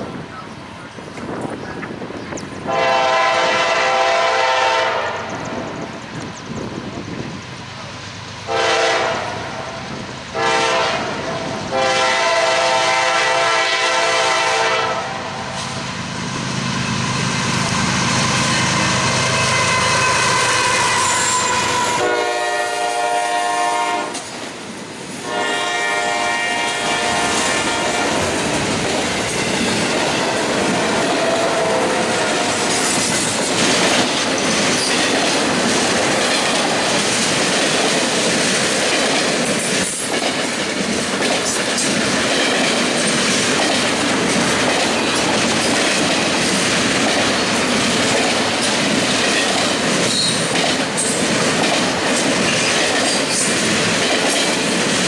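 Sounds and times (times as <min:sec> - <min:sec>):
train rumble and wheel clatter: 0:00.0 - 0:55.0
freight train horn blasts: 0:02.6 - 0:05.5, 0:08.5 - 0:15.8, 0:17.0 - 0:24.3, 0:25.2 - 0:28.4, 0:30.2 - 0:33.0.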